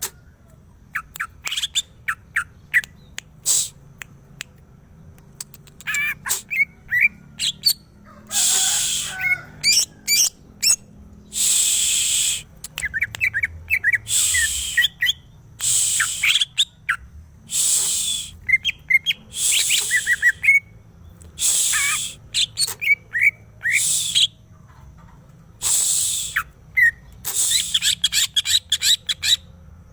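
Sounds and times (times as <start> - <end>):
harsh raspy bird notes: 5.5 - 20.7, 21.3 - 24.4, 25.6 - 29.5
bird singing whistled chirps: 8.4 - 24.4, 25.6 - 29.5.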